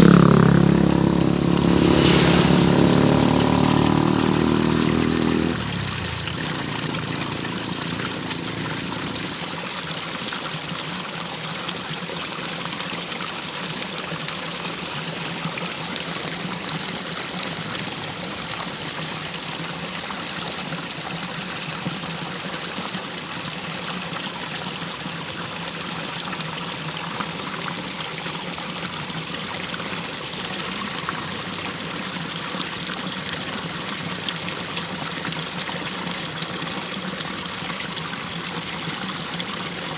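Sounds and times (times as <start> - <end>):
water rushing in a drain: 0.0 - 39.9.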